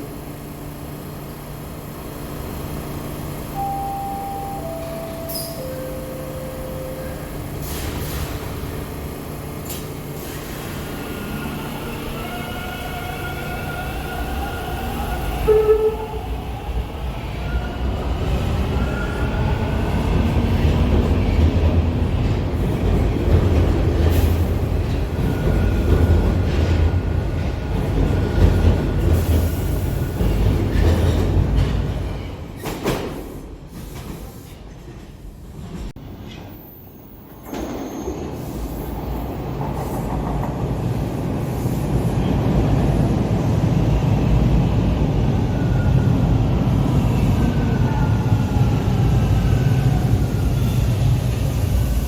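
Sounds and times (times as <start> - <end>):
rumble of passing train cars: 0.0 - 52.0
subway train whine: 0.0 - 52.0
short loud tone: 3.5 - 7.9.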